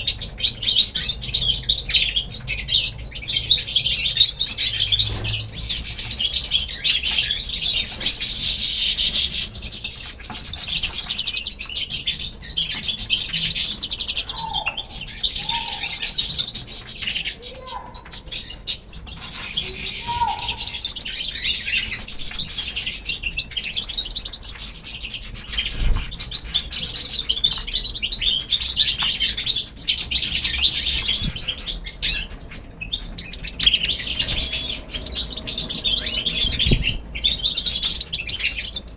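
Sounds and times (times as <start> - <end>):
pet birds chirping and chattering: 0.0 - 38.9
low sliding bird calls: 19.5 - 20.8, 25.0 - 26.6.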